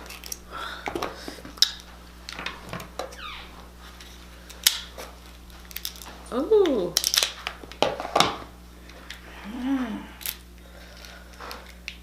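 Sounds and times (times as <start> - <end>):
crab shell clicking and crackling: 0.0 - 2.4, 5.6 - 7.9, 10.2 - 12.0
crab shell snapping: 5.7 - 7.6.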